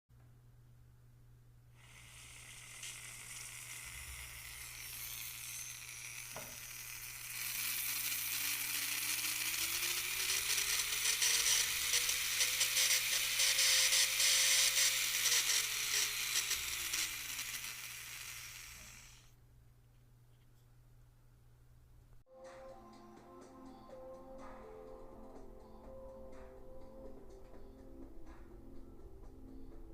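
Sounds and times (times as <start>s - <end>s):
manicure drill whining: 1.8s - 19.4s
drill click: 2.0s - 19.3s.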